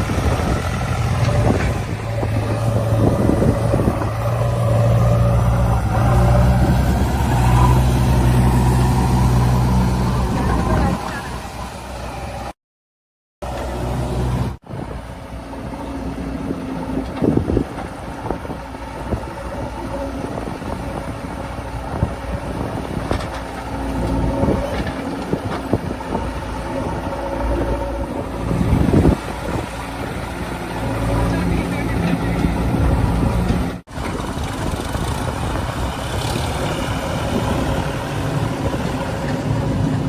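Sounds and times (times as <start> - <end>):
heavy diesel engine running: 0.0 - 12.5, 13.4 - 40.0
knocks and clunks: 22.8 - 26.3.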